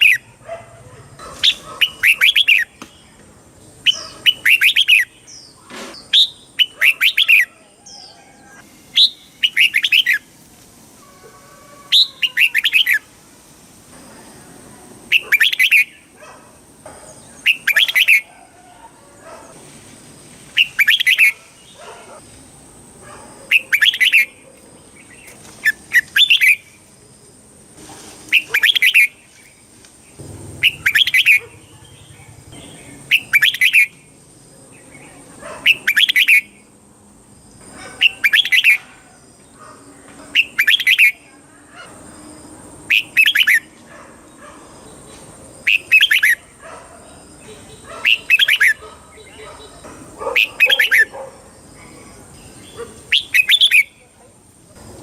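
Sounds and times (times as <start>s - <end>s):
bird singing song phrases: 1.4s - 10.3s, 11.9s - 13.1s, 15.0s - 16.2s, 17.1s - 18.3s, 20.5s - 22.1s, 23.5s - 26.9s, 28.3s - 36.7s, 38.0s - 38.9s, 40.3s - 41.4s, 42.9s - 43.7s, 44.8s - 46.4s, 47.1s - 51.1s, 51.8s - 54.2s.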